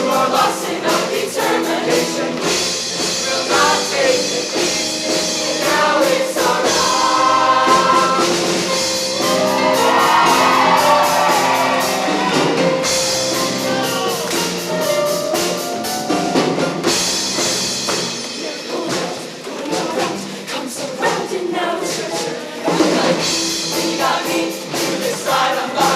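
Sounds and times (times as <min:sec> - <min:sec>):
choir singing: 0:00.0 - 0:15.2, 0:17.4 - 0:25.9
drum kit beat: 0:00.0 - 0:25.9
live band accompaniment: 0:00.0 - 0:25.9.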